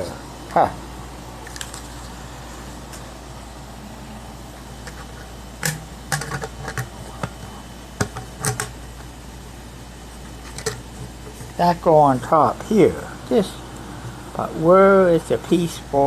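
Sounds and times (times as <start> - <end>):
steady low hum: 0.0 - 16.0
plastic parts clicking together: 5.6 - 8.8.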